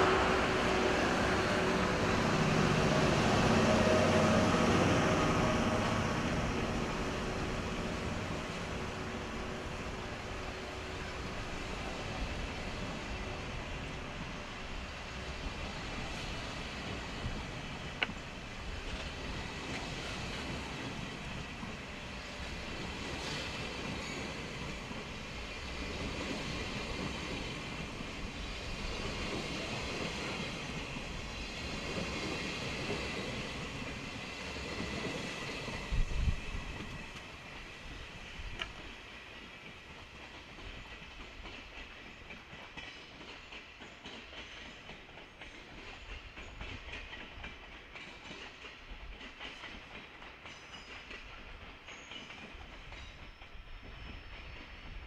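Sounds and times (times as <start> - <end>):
passenger train rumble: 0.0 - 55.0
train wheels clattering over rail joints: 15.5 - 55.0.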